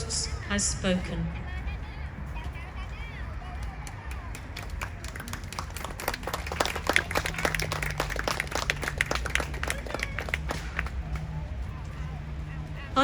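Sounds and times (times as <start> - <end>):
audience applauding: 3.1 - 12.2.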